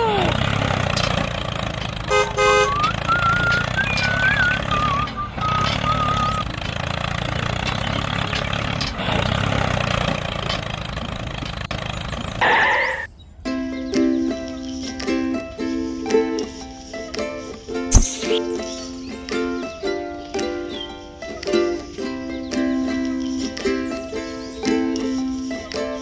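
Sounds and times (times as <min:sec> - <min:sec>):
small engine running: 0:00.0 - 0:12.4
horn toot: 0:02.1 - 0:04.7
wavering whistle-like tone: 0:02.5 - 0:06.4, 0:17.9 - 0:18.6
music: 0:13.5 - 0:26.0.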